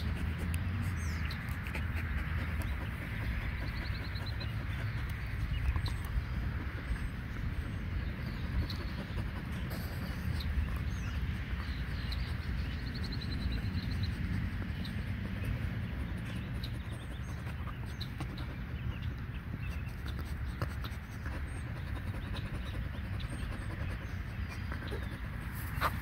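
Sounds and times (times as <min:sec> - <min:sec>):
steady low rumble: 0:00.0 - 0:19.8
small birds chirping: 0:00.0 - 0:26.0.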